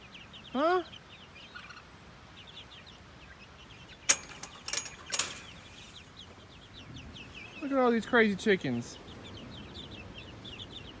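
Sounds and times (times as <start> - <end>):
sharp clicks or knocks: 4.1 - 5.6
chicks peeping: 5.4 - 11.0.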